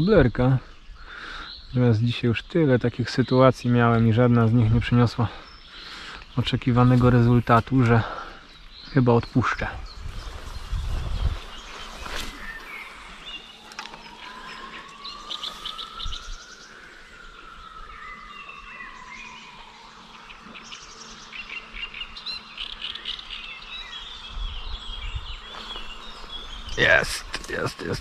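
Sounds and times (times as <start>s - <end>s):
small birds chirping: 0.0s - 28.0s
faint thin whine: 9.4s - 21.3s.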